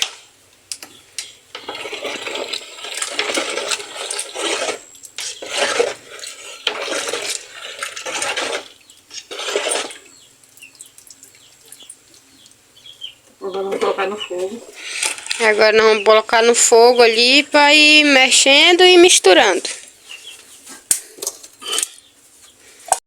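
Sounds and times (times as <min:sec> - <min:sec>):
spoon stirring in metal pot: 0:01.2 - 0:12.6.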